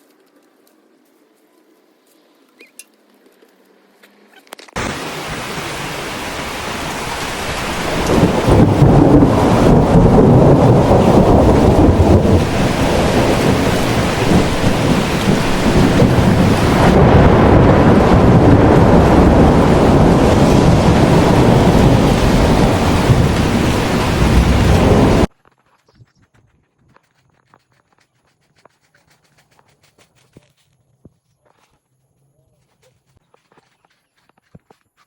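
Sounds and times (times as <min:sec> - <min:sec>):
rain: 0:04.8 - 0:25.3
strong storm wind: 0:04.8 - 0:25.3.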